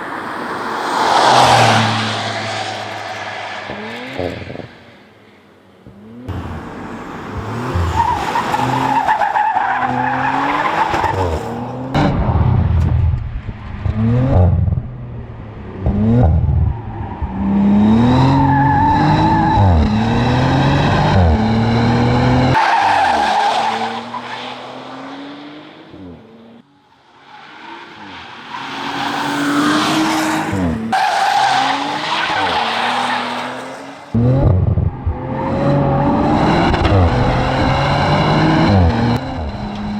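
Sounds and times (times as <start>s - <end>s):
sports car engine revving: 34.1s - 39.9s.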